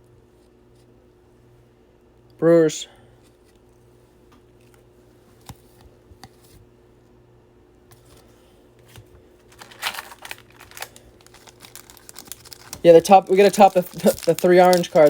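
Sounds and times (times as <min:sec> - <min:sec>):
cards rustling: 0:08.0 - 0:15.0.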